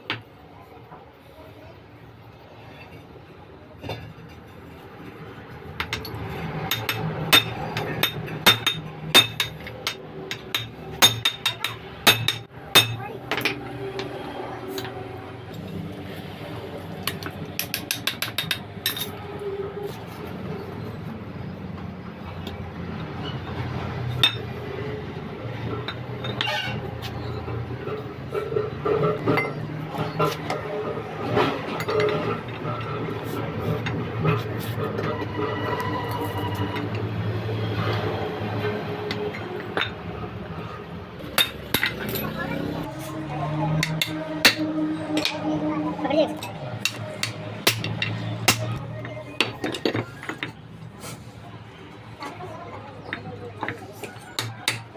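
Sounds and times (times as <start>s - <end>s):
tools clinking on metal: 5.8s - 14.1s, 17.1s - 19.2s, 41.2s - 42.6s.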